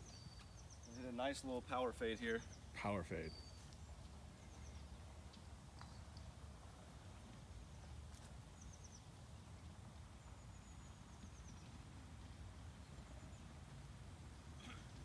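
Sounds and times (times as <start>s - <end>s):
faint bird chirps: 2.2s - 6.2s.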